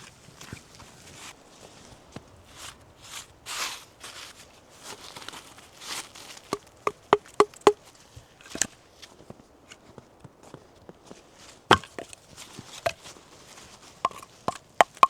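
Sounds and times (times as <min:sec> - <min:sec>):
soft crunching and rustling: 0:00.0 - 0:15.0
sharp ringing wooden knocks: 0:06.5 - 0:07.8, 0:11.7 - 0:12.2, 0:14.0 - 0:15.0.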